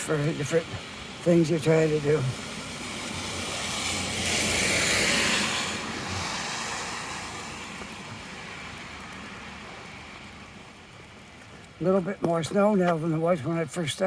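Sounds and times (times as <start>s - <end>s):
vehicle driving past: 2.5s - 10.3s.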